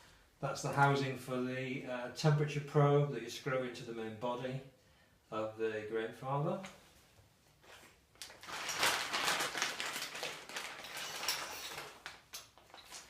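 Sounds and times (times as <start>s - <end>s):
plastic packaging crinkling: 7.6s - 13.0s.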